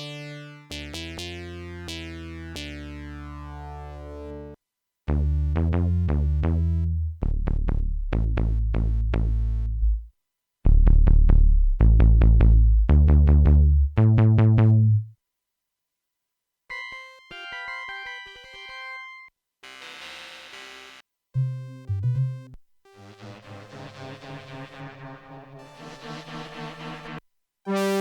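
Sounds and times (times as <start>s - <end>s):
synthesizer bass notes: 0.0s - 4.5s, 5.1s - 10.1s, 10.7s - 15.1s, 21.4s - 28.0s.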